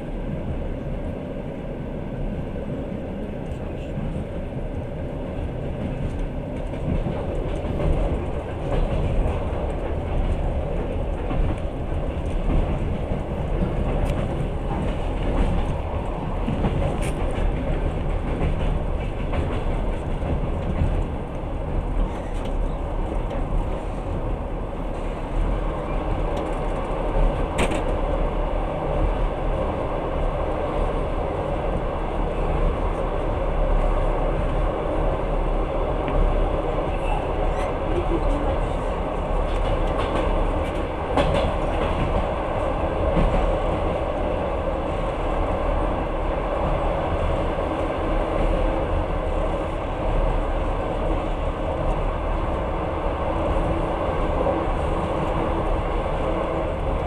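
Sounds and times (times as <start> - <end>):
train rumble and rail noise: 0.0 - 57.0.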